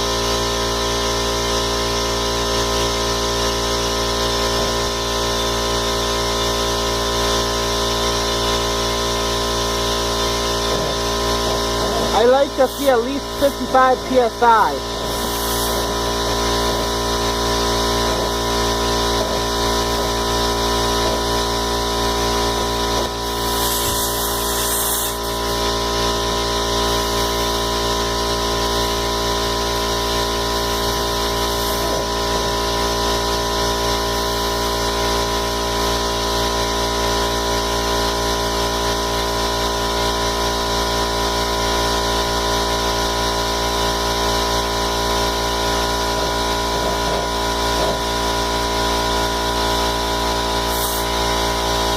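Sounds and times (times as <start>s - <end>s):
air compressor motor hum: 0.0s - 51.9s
air hissing: 14.8s - 27.7s, 28.8s - 32.8s, 45.3s - 49.1s, 50.6s - 51.9s.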